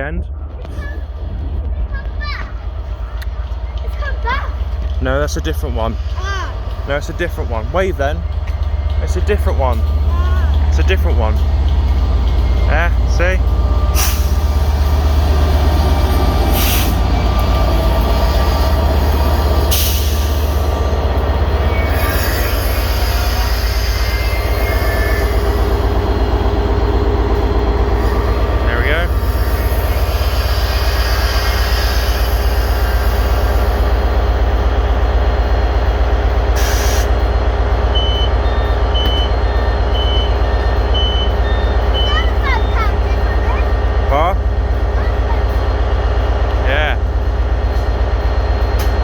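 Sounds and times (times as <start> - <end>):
diesel train engine rumble: 0.0 - 49.0
air release hiss: 36.6 - 37.1.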